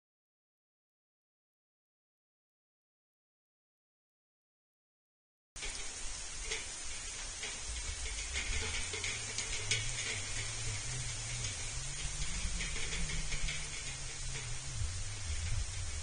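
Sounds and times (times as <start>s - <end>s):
faint clicks: 5.6s - 16.0s
steady hiss: 5.6s - 16.0s
low wavering hum: 6.0s - 16.0s.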